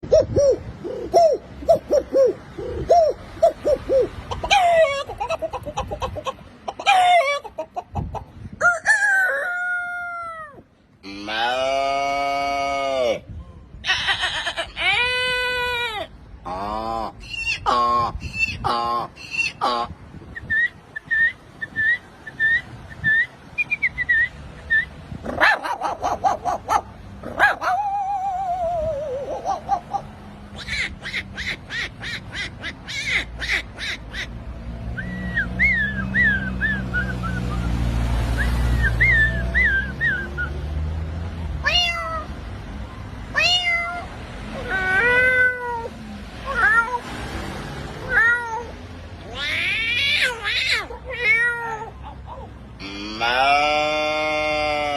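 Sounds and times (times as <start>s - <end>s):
man imitating dog yaps: 0.0s - 5.2s, 25.3s - 31.2s, 43.9s - 47.0s, 49.6s - 54.9s
man imitating dog whine: 10.0s - 13.3s, 27.4s - 30.0s, 52.8s - 54.9s
man imitating cat meows: 11.1s - 17.1s, 52.8s - 54.9s
man whistling bird-like chirps: 20.3s - 25.0s, 34.9s - 37.8s, 38.4s - 40.6s.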